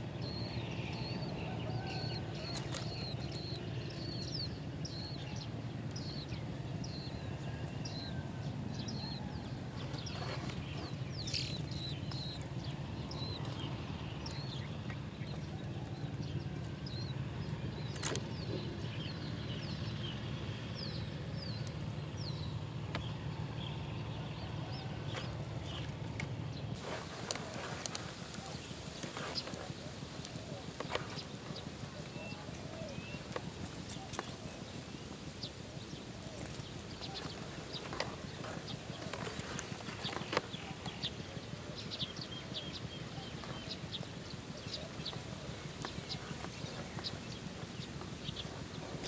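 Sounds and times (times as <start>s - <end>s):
small bird chirping: 0.2s - 8.2s, 9.9s - 15.4s, 26.8s - 49.0s.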